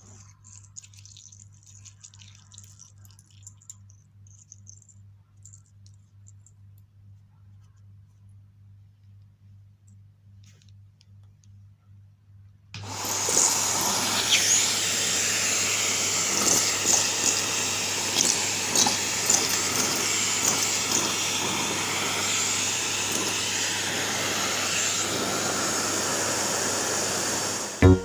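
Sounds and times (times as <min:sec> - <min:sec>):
small objects clicking in hose: 0:00.0 - 0:06.9, 0:12.8 - 0:25.0
vacuum cleaner running: 0:12.8 - 0:28.0.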